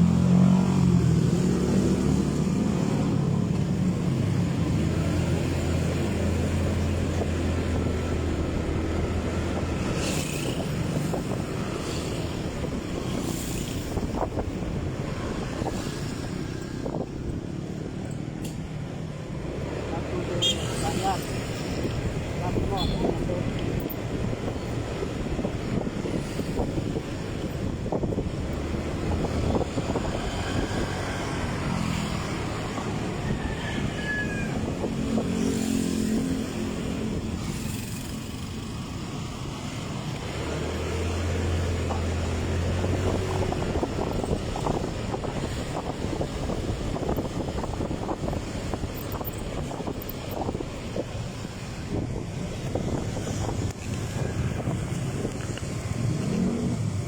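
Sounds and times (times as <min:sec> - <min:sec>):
motorcycle engine and road rumble: 0:00.0 - 0:57.0
wind buffeting microphone: 0:06.3 - 0:18.1, 0:21.8 - 0:57.0.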